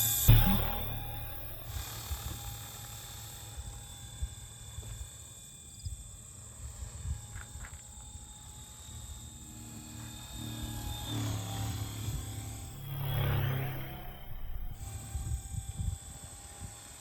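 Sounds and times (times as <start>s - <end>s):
steady high tones: 0.0s - 2.0s, 12.6s - 15.0s
low fluttering rumble: 0.3s - 1.9s, 12.6s - 15.1s.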